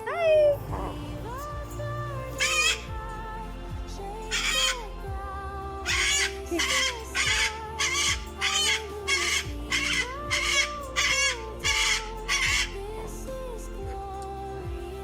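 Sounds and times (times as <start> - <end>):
bird squawking harshly: 2.4 - 2.8, 4.3 - 4.8, 5.9 - 12.8.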